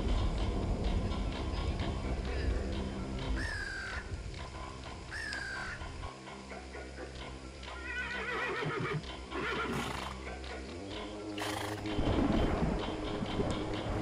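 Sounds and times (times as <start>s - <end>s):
background music: 0.0s - 14.0s
horse whinnying: 7.8s - 10.2s, 11.4s - 11.9s.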